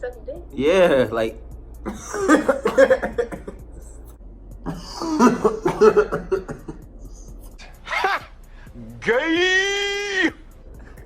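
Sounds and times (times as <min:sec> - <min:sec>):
people laughing: 0:01.9 - 0:03.6, 0:04.7 - 0:06.9.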